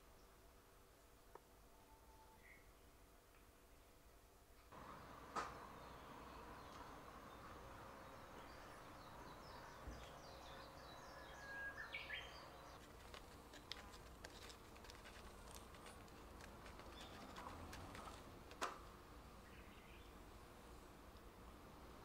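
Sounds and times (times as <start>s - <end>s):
faint bird chirps: 1.6s - 3.0s, 5.6s - 12.8s.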